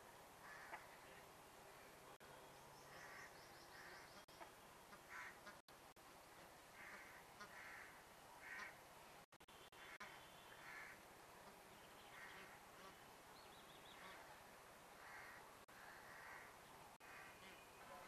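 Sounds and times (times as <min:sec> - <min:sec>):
faint short bird calls: 0:02.8 - 0:05.6, 0:15.0 - 0:18.0.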